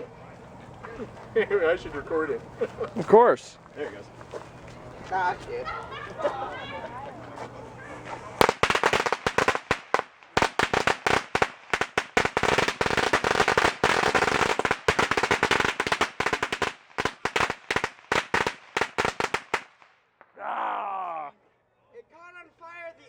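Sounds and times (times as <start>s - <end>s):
firecrackers banging: 7.8s - 20.0s.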